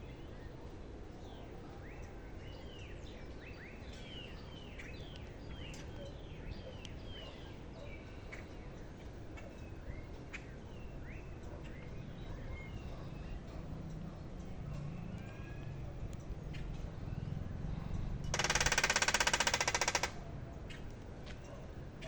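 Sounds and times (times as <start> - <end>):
steady background hum: 0.0 - 22.0
birds chirping: 1.3 - 21.6
clicks: 18.3 - 20.2.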